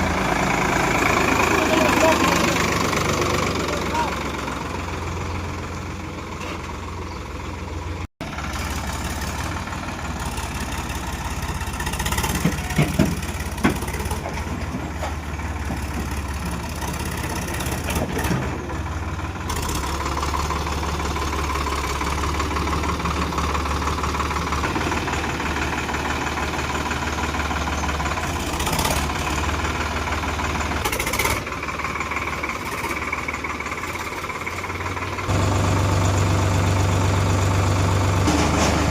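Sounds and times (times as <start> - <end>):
tractor engine running: 0.0 - 38.9
sharp knocks or clanks: 12.2 - 16.2.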